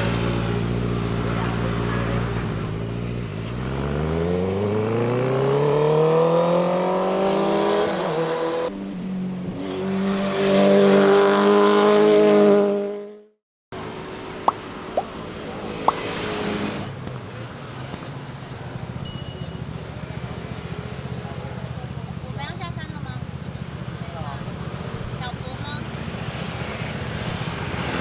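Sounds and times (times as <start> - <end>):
motorcycle at high revs: 0.0 - 8.7, 9.5 - 13.1, 15.0 - 17.1, 19.4 - 28.0
motorcycle engine accelerating: 0.0 - 13.1.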